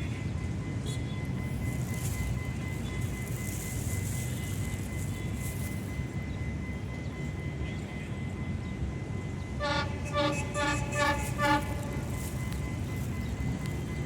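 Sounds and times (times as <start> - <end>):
train rumbling: 0.0 - 14.0
locomotive horn toots: 9.5 - 12.8.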